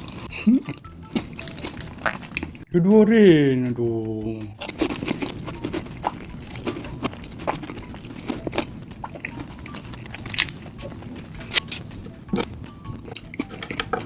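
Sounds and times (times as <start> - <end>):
chewing with wet mouth clicks: 0.0 - 2.6, 4.6 - 14.0
small crunches: 4.6 - 14.0.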